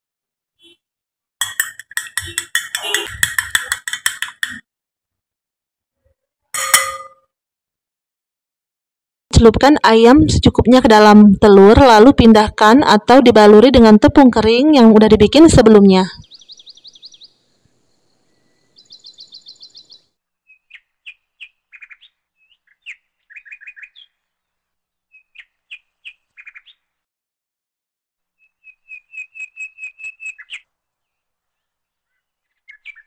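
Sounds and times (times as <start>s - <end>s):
small birds chirping: 1.4s - 4.6s, 16.0s - 26.9s, 28.4s - 33.0s.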